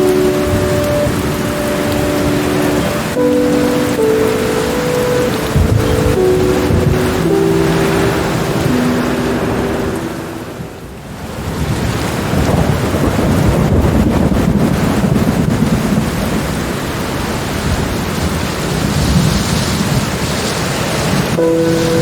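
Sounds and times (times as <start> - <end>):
soft music notes: 0.0 - 11.0, 21.4 - 22.0
heavy rain: 0.0 - 22.0
rolling thunder rumble: 0.0 - 22.0.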